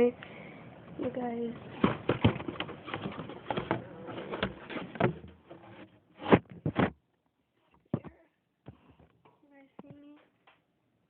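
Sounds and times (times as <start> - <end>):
sharp knocks on containers: 1.6 - 3.8.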